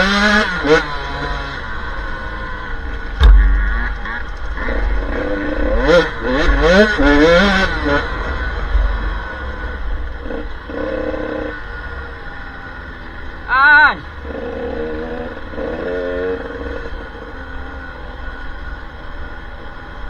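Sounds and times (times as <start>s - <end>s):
motorcycle engine revving: 0.0s - 20.0s
heavy low rumble: 2.8s - 9.3s
sharp knock: 3.2s - 6.7s.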